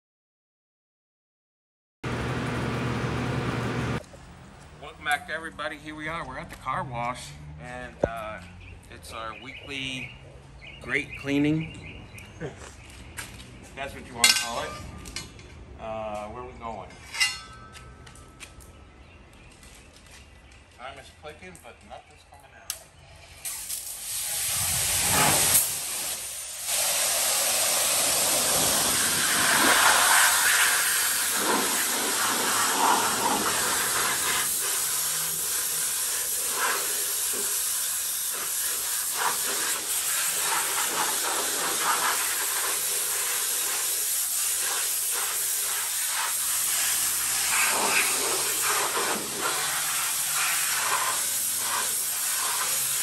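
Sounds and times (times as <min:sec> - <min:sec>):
pressure washer spraying water: 0:23.3 - 0:53.0.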